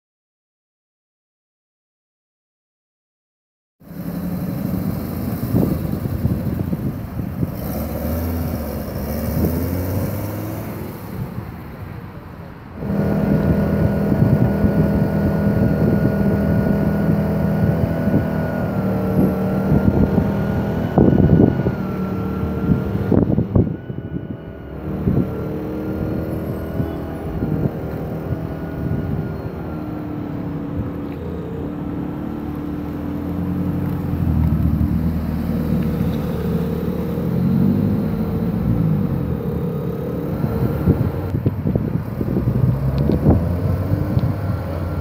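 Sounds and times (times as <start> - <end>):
car engines driving slowly past: 3.8 - 45.0.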